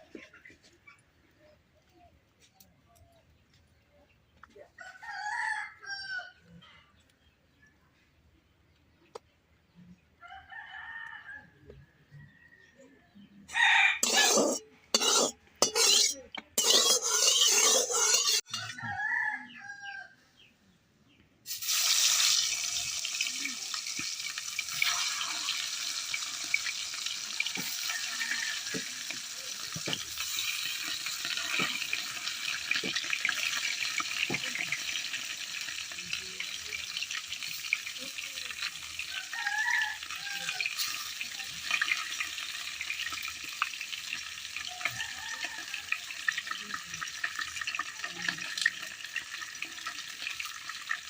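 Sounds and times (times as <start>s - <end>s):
rooster crowing: 4.8s - 6.3s, 13.5s - 14.6s, 18.4s - 20.2s, 27.4s - 29.0s, 39.1s - 41.0s, 44.7s - 46.0s
fish sizzling in hot oil: 14.0s - 18.5s, 21.5s - 51.0s.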